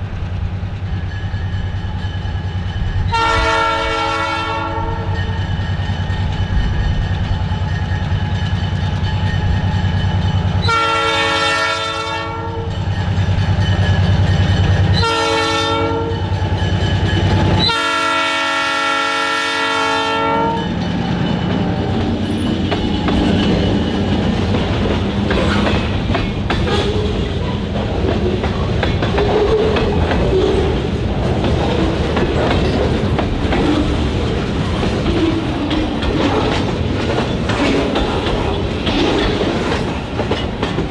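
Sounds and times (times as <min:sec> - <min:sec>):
train wheels clicking over rail joints: 0:00.0 - 0:11.8, 0:12.5 - 0:15.3, 0:16.2 - 0:18.3, 0:20.6 - 0:40.9
locomotive air horn blasts: 0:03.1 - 0:05.2, 0:10.6 - 0:12.7, 0:15.0 - 0:16.2, 0:17.6 - 0:20.7
locomotive engine rumble: 0:20.7 - 0:40.9.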